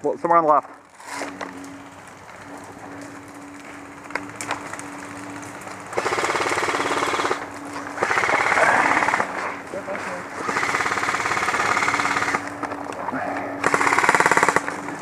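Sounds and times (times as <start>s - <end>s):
airsoft gun firing bursts: 6.0s - 7.4s, 8.0s - 9.3s, 10.4s - 12.5s, 13.6s - 14.8s.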